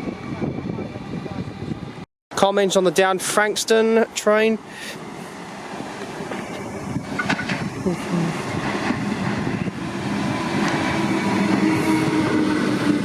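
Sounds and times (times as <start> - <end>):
electric train approaching: 2.7 - 13.0.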